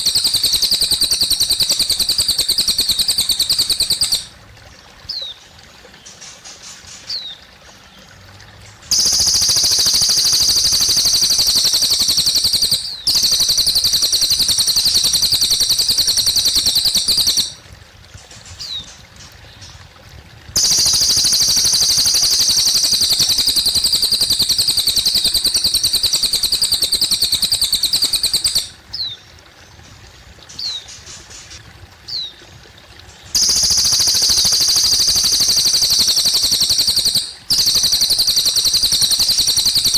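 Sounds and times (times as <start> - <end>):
bird singing rapid trills: 0.0 - 4.3, 8.9 - 17.6, 20.6 - 29.3, 30.5 - 32.3, 33.3 - 39.9
sharp bird chirps: 0.0 - 4.3, 8.9 - 17.6, 20.6 - 29.1, 33.4 - 39.9
faint trickle of water: 0.0 - 39.9.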